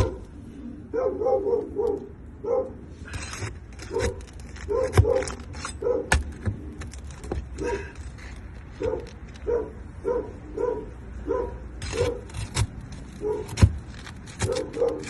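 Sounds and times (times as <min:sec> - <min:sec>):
dog barking: 0:00.0 - 0:00.2, 0:00.9 - 0:02.8, 0:03.9 - 0:06.1, 0:07.6 - 0:07.9, 0:08.8 - 0:12.3, 0:13.2 - 0:13.5, 0:14.4 - 0:15.0.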